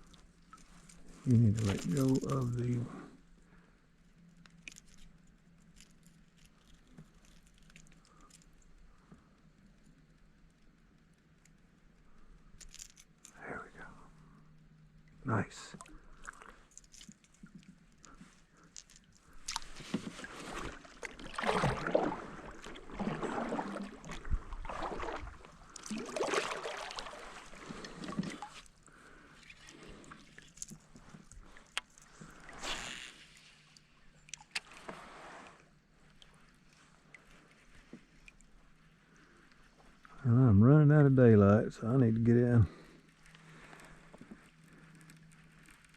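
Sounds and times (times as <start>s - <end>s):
water splashing against kayak: 19.1s - 33.4s.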